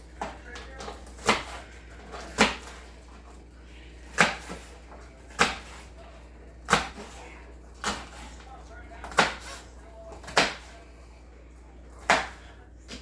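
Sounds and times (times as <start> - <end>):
knife chopping on cutting board: 1.1 - 1.6, 2.2 - 2.8, 4.0 - 5.9, 6.6 - 7.2, 7.8 - 8.2, 9.0 - 9.6, 10.2 - 10.7, 12.0 - 13.0.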